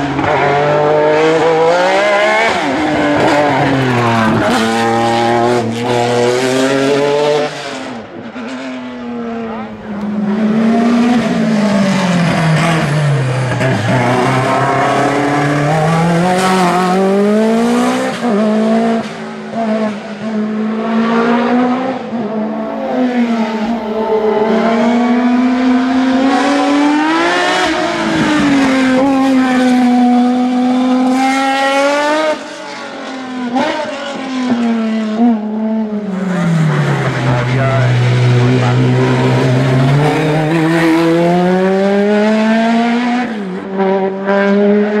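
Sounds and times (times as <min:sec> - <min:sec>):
racing car engine revving: 0:00.0 - 0:32.6, 0:33.2 - 0:45.0.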